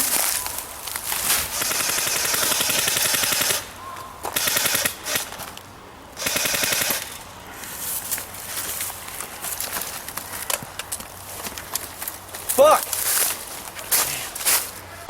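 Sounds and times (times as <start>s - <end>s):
airsoft gun firing bursts: 1.4s - 5.5s, 6.2s - 7.3s.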